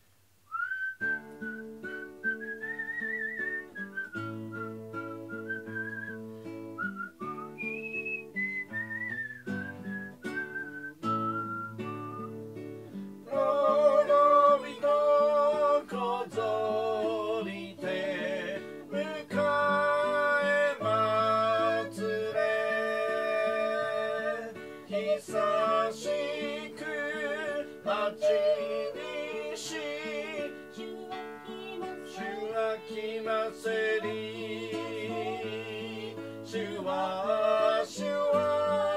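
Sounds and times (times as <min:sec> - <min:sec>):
whistled melody: 0:00.5 - 0:12.6
plucked acoustic guitar chords: 0:01.0 - 0:38.9
voices singing with vibrato: 0:13.3 - 0:38.9.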